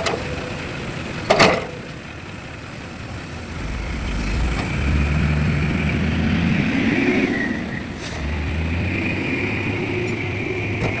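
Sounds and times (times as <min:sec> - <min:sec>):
diesel engine running under load: 0:00.0 - 0:11.0
steady high whine: 0:02.9 - 0:08.0.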